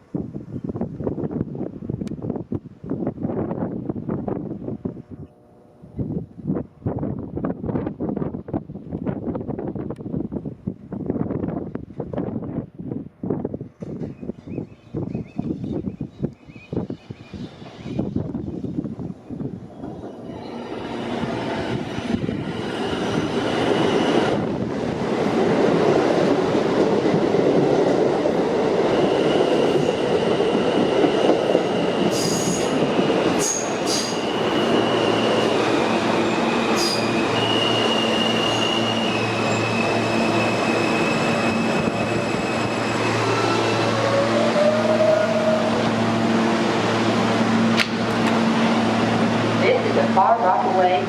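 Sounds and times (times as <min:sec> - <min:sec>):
subway train rumbling on rails: 0:00.0 - 0:51.0
high-pitched wheel squeals: 0:33.4 - 0:45.7.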